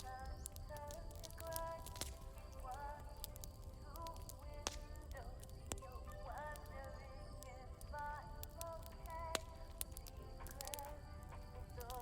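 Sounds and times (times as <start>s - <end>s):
campfire crackling and popping: 0.0s - 12.0s
song playing faintly from radio: 0.0s - 12.0s.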